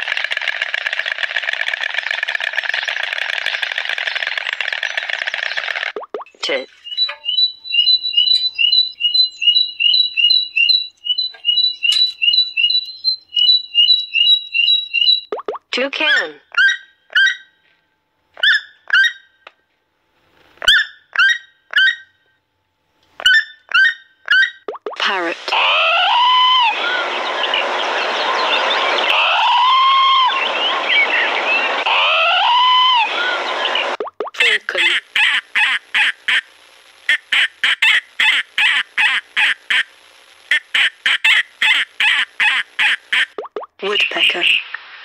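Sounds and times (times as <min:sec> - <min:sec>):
toucan calling: 0:06.3 - 0:17.5, 0:20.6 - 0:22.2, 0:23.2 - 0:25.0.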